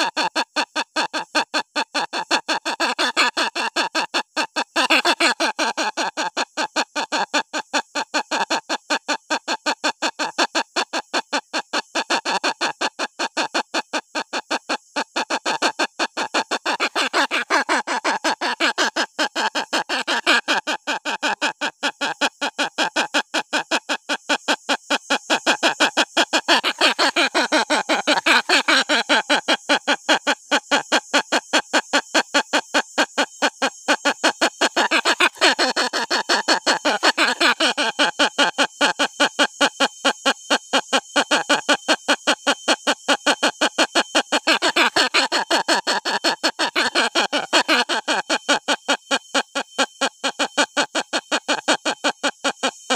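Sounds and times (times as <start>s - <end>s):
hornbill chick crying: 0.0s - 0.4s, 4.8s - 7.1s, 14.2s - 22.2s, 25.4s - 30.9s, 33.2s - 39.0s, 44.2s - 52.0s.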